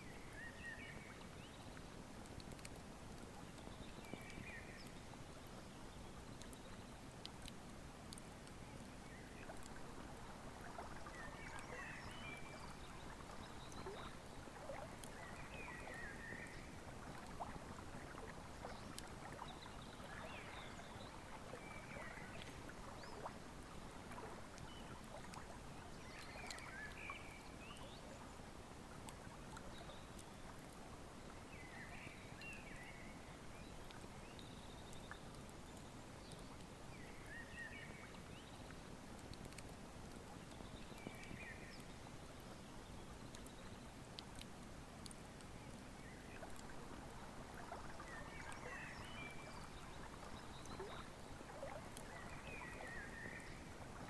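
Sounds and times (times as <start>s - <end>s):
river flowing: 46.1s - 54.0s.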